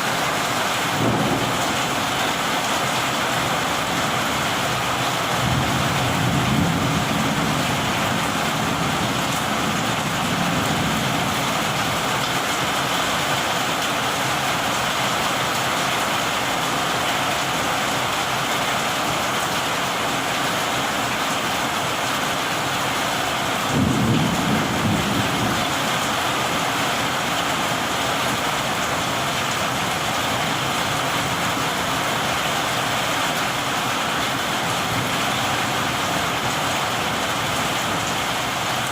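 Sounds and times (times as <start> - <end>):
heavy rain falling: 0.0 - 38.9
thunder rumbling: 0.8 - 2.6, 4.9 - 12.0, 23.6 - 25.9.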